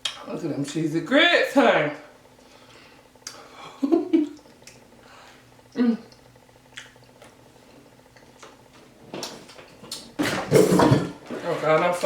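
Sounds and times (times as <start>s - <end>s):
person chewing: 5.7s - 7.4s
short hummed voice sounds: 5.8s - 6.1s.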